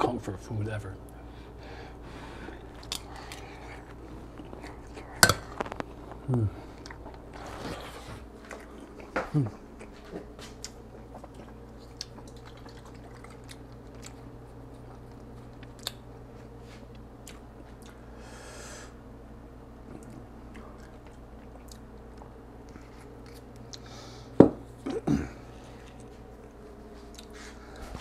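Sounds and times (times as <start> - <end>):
steady low hum: 0.0 - 28.0
quiet chewing: 2.5 - 18.1, 19.8 - 24.0, 25.4 - 28.0.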